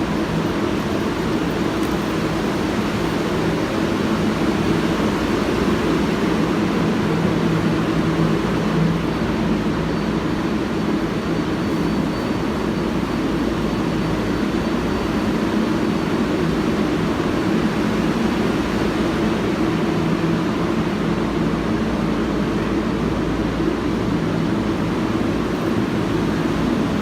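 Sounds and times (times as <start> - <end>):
subway train hum and rumble: 0.0 - 27.0.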